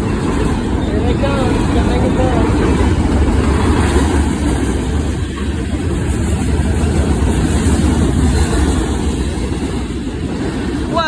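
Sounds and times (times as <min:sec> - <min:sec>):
freight train wheels rumbling on rail: 0:00.0 - 0:11.0.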